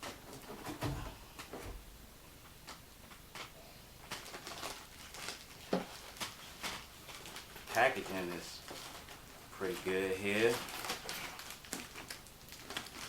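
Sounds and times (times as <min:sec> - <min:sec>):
cardboard packaging rustling: 0:02.6 - 0:13.0.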